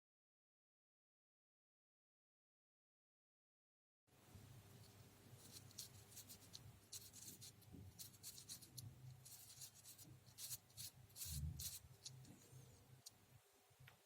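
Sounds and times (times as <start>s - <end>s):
paper parts clicking and scratching: 5.4s - 12.5s.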